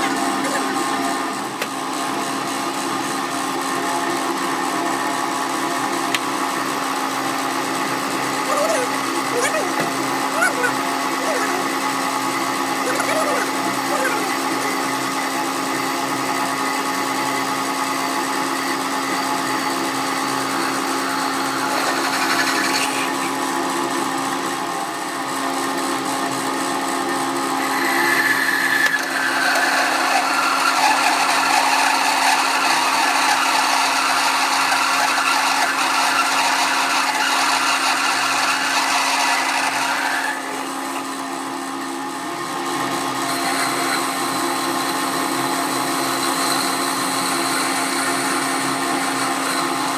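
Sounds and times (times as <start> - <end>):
harsh cutting sound: 7.8 - 16.1.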